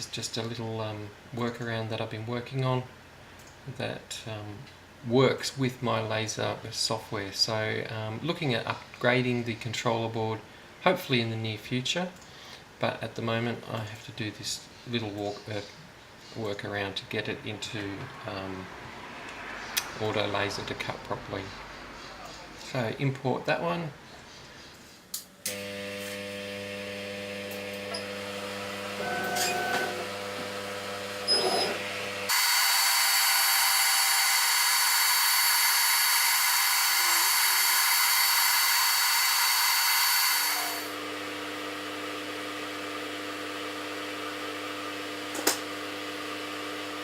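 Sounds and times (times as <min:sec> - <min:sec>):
electrical machine hum: 0:25.4 - 0:47.0
high-pitched power tool whir: 0:25.5 - 0:30.5, 0:31.2 - 0:41.0.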